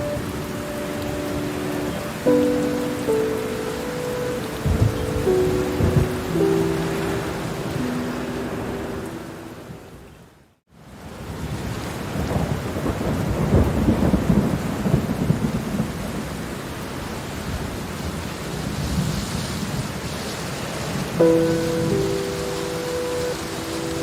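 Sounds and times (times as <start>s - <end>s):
thunder rumbling: 0.0s - 8.9s, 12.1s - 16.4s
held music notes: 0.0s - 10.0s, 21.2s - 24.0s
steady rain: 0.0s - 24.0s.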